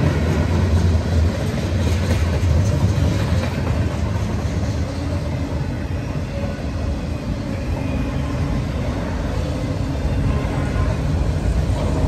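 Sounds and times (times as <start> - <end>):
freight train cars passing: 0.0 - 12.0.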